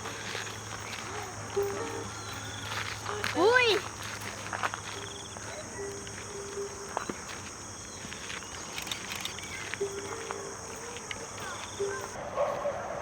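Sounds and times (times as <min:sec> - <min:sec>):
insects chirring: 0:00.0 - 0:12.2.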